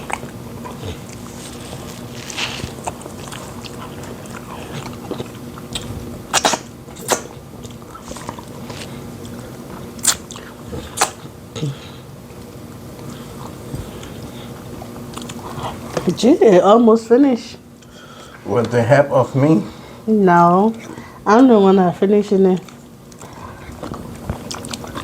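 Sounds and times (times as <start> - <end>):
food being chewed: 0.0 - 16.2, 22.6 - 25.0
sharp mouth smacks: 5.8 - 7.3.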